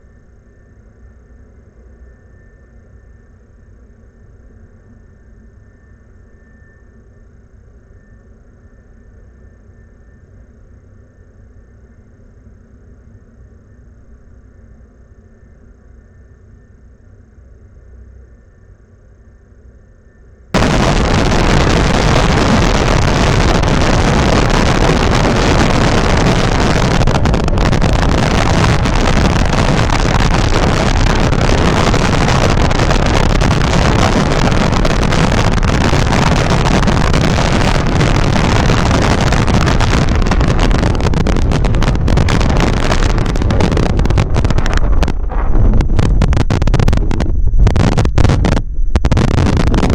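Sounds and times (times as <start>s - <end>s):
wind buffeting microphone: 20.6s - 49.9s.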